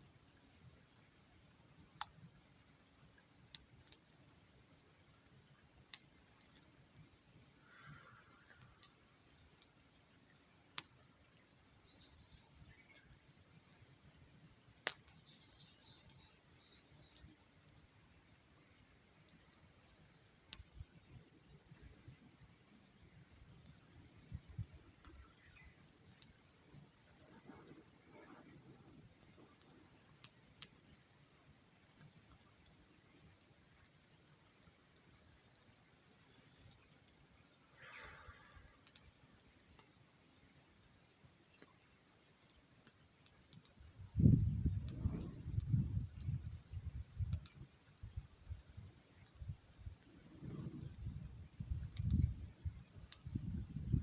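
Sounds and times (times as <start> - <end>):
campfire crackling: 0.0 - 54.0
fire small clicks: 0.0 - 54.0
fire sharp pops: 14.8 - 17.8, 42.8 - 48.2, 48.9 - 54.0
low hush: 36.2 - 39.2.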